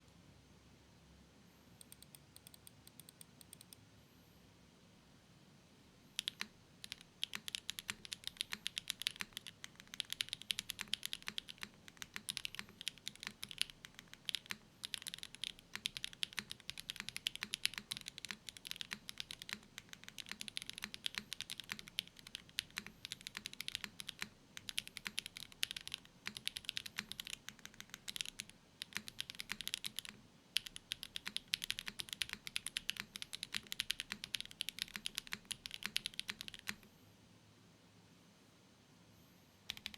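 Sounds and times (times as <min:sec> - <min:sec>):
fast typing on mechanical keyboard: 0:06.2 - 0:36.9, 0:39.7 - 0:39.9.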